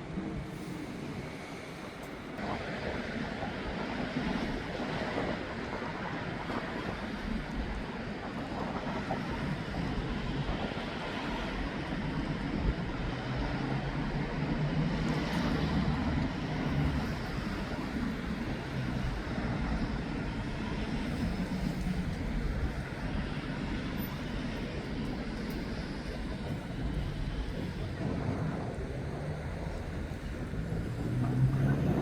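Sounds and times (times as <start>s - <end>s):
vehicles passing on street: 11.1s - 32.0s.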